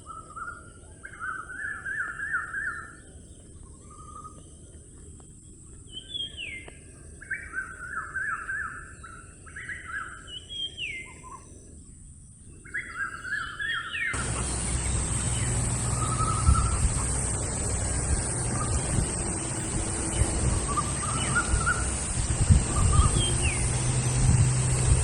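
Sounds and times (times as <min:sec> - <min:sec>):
outdoor background noise: 0:00.0 - 0:25.0
birds calling: 0:12.6 - 0:25.0
low hum: 0:14.2 - 0:25.0.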